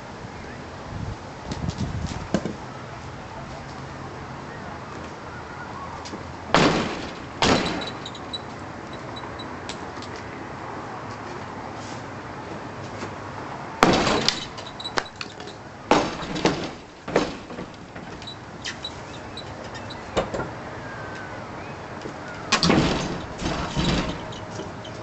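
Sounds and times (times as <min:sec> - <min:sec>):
loud crashes and bangs of demolition: 0:06.6 - 0:08.1, 0:13.8 - 0:14.6, 0:15.9 - 0:18.2, 0:22.5 - 0:24.4.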